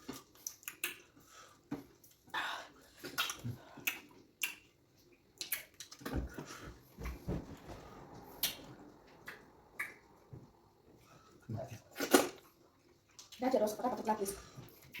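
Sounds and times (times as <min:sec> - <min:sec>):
wet chewing mouth sounds: 0:00.0 - 0:02.3, 0:02.9 - 0:06.1.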